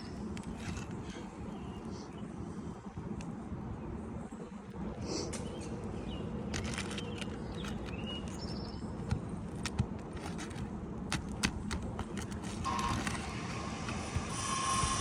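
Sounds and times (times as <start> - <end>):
low outdoor rumble: 0.0 - 15.0
tools clicking and tapping on roof: 6.5 - 14.3.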